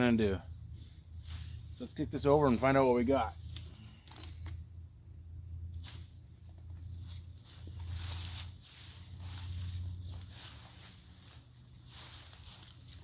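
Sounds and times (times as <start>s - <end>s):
steady low hum: 0.0s - 13.0s
footsteps: 0.8s - 2.8s, 5.8s - 13.0s.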